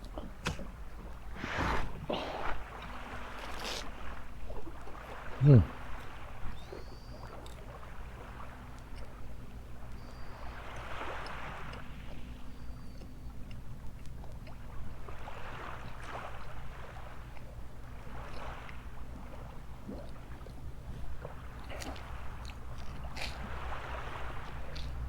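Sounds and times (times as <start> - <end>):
small waves washing on sand: 0.0 - 12.5, 14.8 - 25.0.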